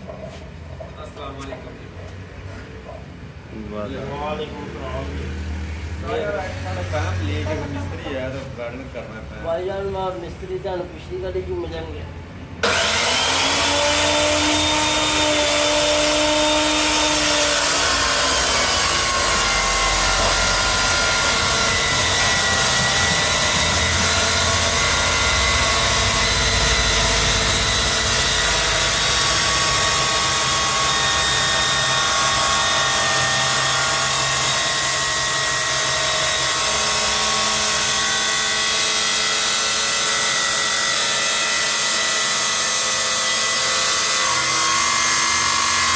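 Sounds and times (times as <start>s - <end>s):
power tool whining on steel shaft: 12.6s - 45.9s.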